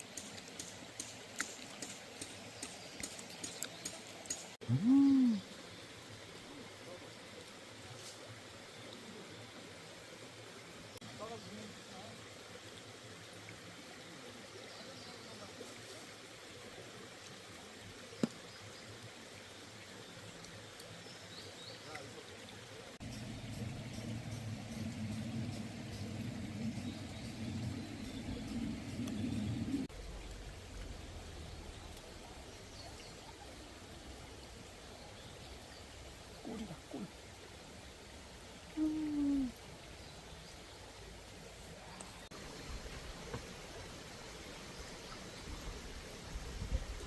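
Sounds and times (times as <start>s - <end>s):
stream flowing: 0.0s - 47.0s.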